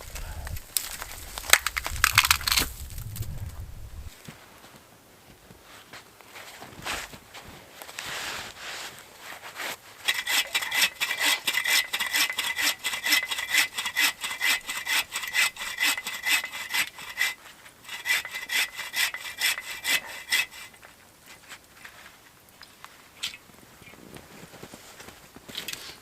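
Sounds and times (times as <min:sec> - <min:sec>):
hand saw cutting wood: 0:10.0 - 0:21.5.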